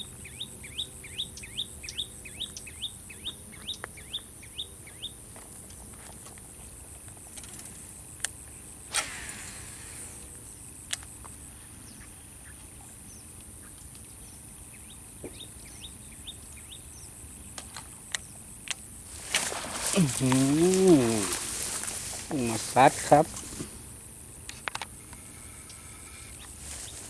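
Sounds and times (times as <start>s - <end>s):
small birds chirping: 0.0s - 5.9s, 11.6s - 18.5s.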